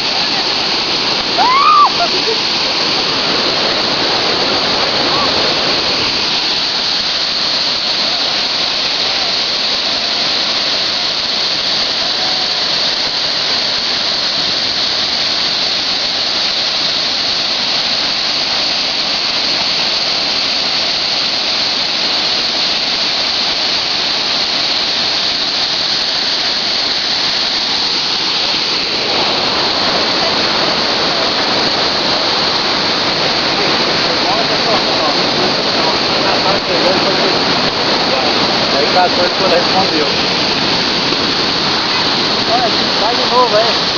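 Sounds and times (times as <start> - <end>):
waterfall roaring: 0.0 - 43.9.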